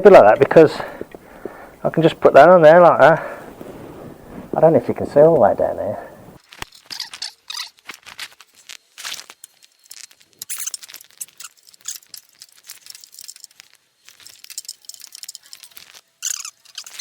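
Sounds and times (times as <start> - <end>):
spanner clicking and scraping on nut: 10.4 - 17.0.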